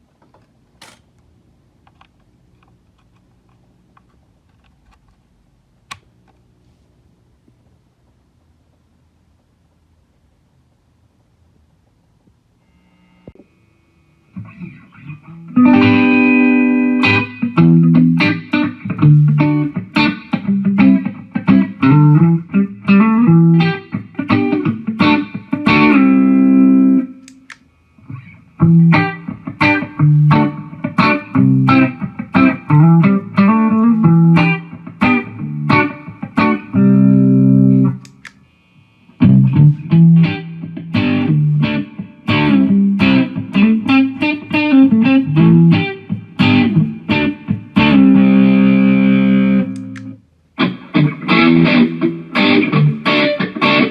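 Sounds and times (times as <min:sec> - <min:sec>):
distorted electric guitar riffs: 0:14.3 - 0:27.2, 0:28.0 - 0:38.0, 0:39.2 - 0:53.9.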